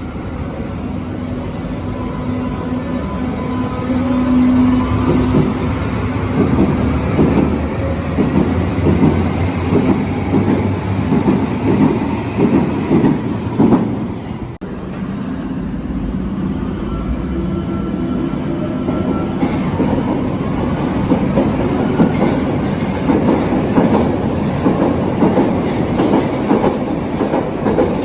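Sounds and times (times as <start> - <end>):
train running rumble: 0.0 - 28.0
train wheels clattering over rail joints: 21.1 - 28.0.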